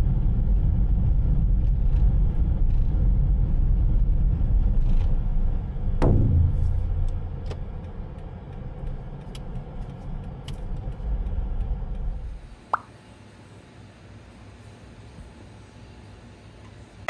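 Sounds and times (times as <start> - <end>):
clicks and knocks: 6.0 - 8.2.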